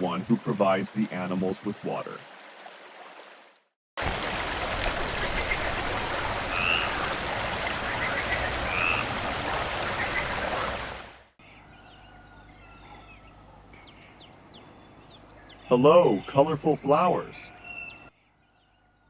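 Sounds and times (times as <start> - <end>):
brook water running: 0.0 - 11.4, 14.3 - 18.1
background birdsong: 4.8 - 19.0
bird chirps: 11.4 - 19.0.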